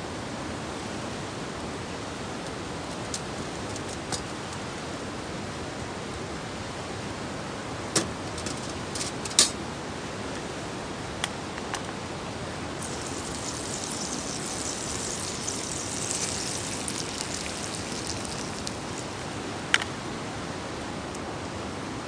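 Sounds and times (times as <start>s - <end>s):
campfire crackling and popping: 12.8s - 19.3s.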